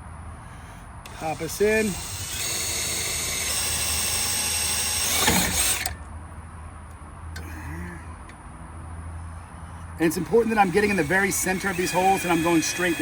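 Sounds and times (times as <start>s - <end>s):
power drill boring a hole: 1.1s - 5.9s, 10.4s - 13.0s.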